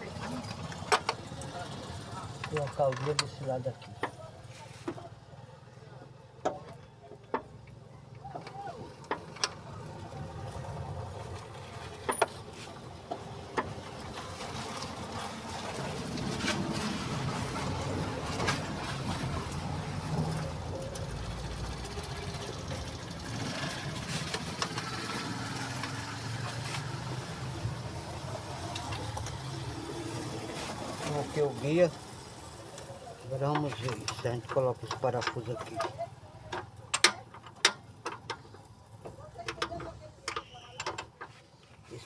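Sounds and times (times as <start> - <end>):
metal clinks of tools and car part: 2.4 - 4.2, 33.4 - 41.4.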